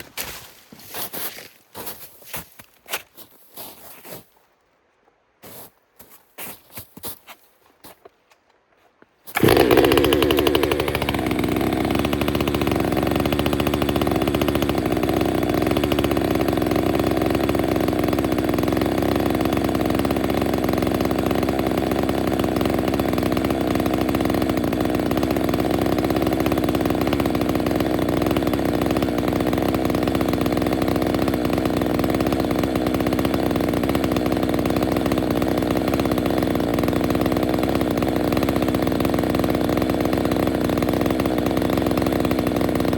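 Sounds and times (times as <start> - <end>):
chainsaw running: 9.3 - 42.9.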